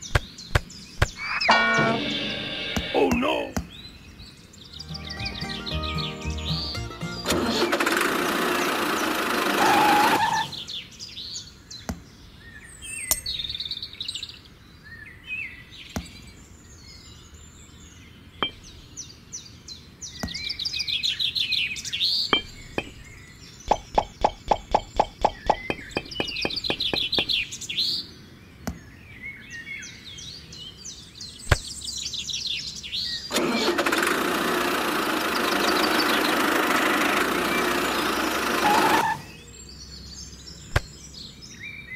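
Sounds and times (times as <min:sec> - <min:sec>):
bird chirps: 0:00.0 - 0:33.3, 0:35.2 - 0:36.6
toy electric motor whirring: 0:07.3 - 0:10.6, 0:33.3 - 0:39.3.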